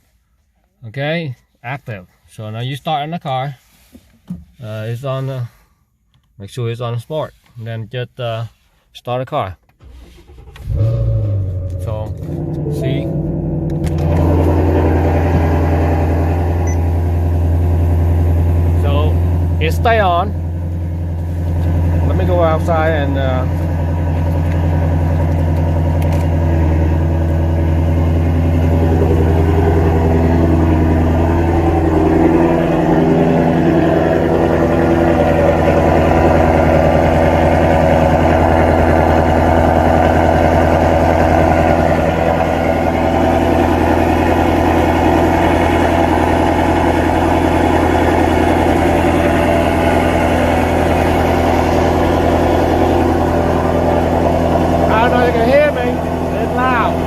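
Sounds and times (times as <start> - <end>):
loud car engine idling: 10.3 - 57.0.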